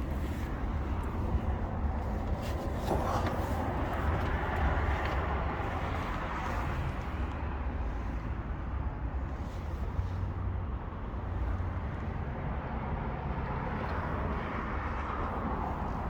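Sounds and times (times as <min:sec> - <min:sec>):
heavy vehicle engine rumbling: 0:00.0 - 0:16.0.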